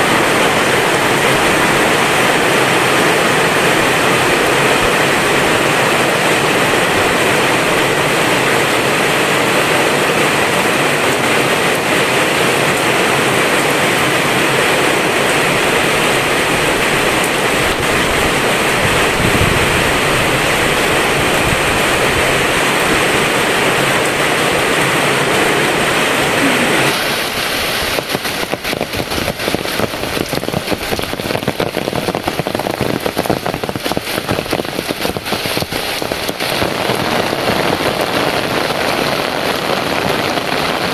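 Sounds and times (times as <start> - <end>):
heavy rain pouring: 0.0 - 40.9
crackling patter of drops: 27.0 - 38.2.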